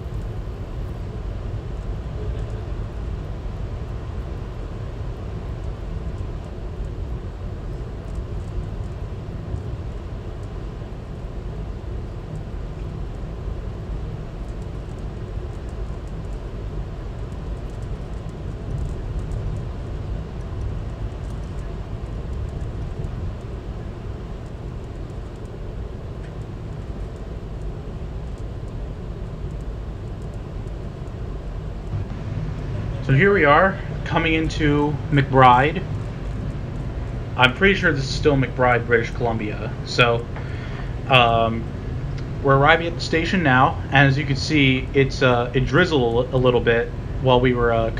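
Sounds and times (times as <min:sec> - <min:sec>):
moving train rumble: 0:31.9 - 0:45.4.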